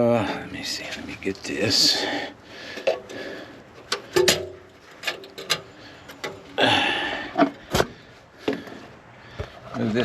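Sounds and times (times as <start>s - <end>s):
tools clicking and knocking: 3.8s - 6.5s.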